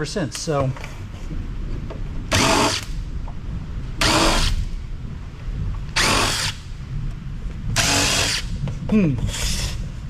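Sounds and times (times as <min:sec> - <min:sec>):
cordless drill spinning screws: 0:04.0 - 0:04.6, 0:06.0 - 0:06.6, 0:07.8 - 0:08.4.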